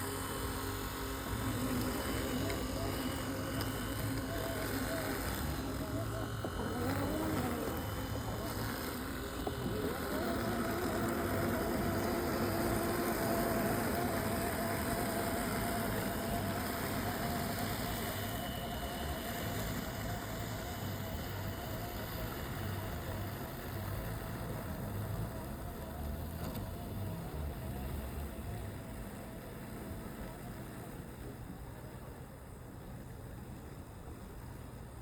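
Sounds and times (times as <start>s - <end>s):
robotic lawn mower running: 0.0s - 35.0s.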